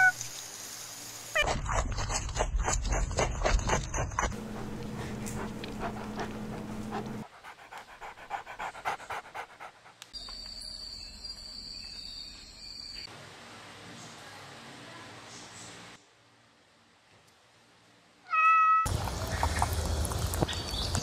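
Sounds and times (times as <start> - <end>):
small dog panting: 1.6 - 10.1.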